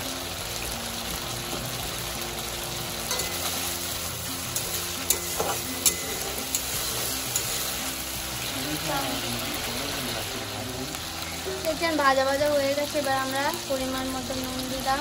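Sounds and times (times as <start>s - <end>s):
paste sizzling in oil: 0.0s - 15.0s
metal spatula clinking on pan: 3.1s - 3.9s, 4.5s - 7.9s.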